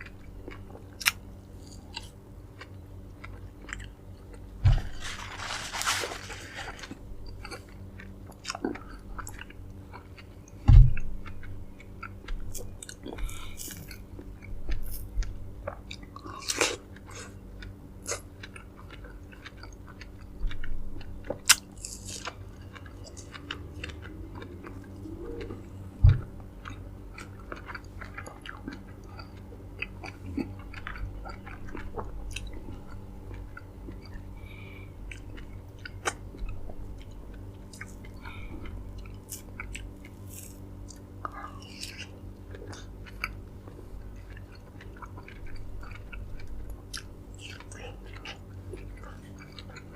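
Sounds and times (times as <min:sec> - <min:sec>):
chewing and biting fruit: 0:00.0 - 0:49.9
dull thumps: 0:26.0 - 0:26.4.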